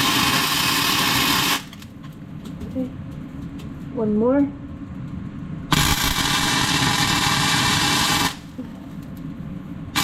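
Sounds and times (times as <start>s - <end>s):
arc welder sizzling: 0.0s - 1.8s, 5.7s - 8.6s.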